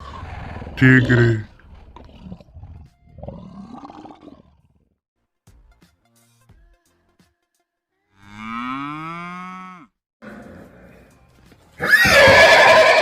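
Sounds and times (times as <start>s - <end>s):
horse neighing: 0.0s - 4.3s, 11.8s - 13.0s
cow mooing: 8.2s - 10.9s.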